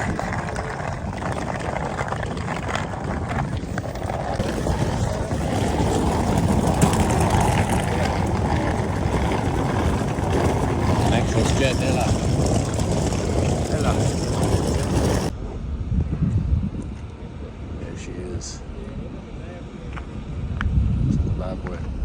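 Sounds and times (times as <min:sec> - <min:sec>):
ferry engines rumbling: 0:00.0 - 0:16.0.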